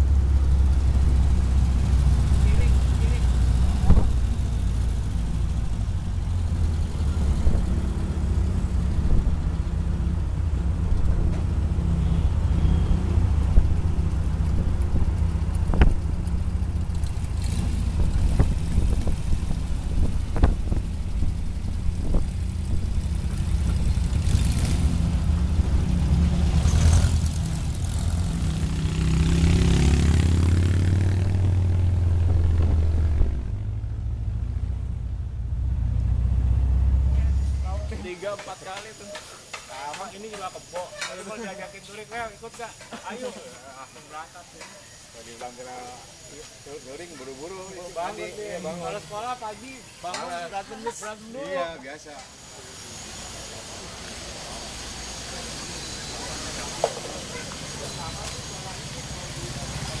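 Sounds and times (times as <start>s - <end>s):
car engine running: 0.0s - 38.2s
road noise: 0.0s - 60.0s.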